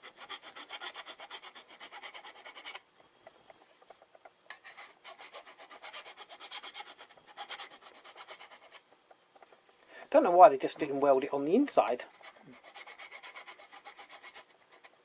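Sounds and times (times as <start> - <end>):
rubbing metal by hand: 0.0 - 2.8, 3.4 - 8.9, 12.1 - 15.0.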